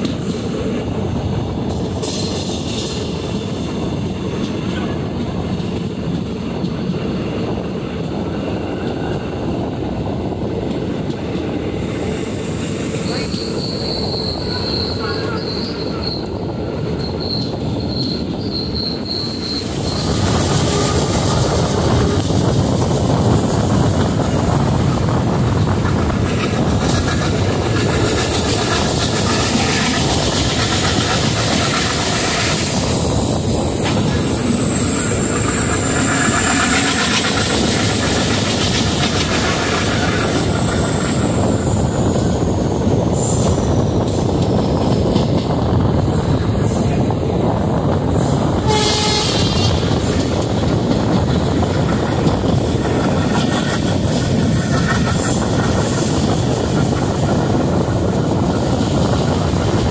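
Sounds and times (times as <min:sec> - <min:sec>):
train wheels rumbling on rails: 0:00.0 - 0:59.9
high thin wheel squeal: 0:13.0 - 0:16.3, 0:17.0 - 0:21.1.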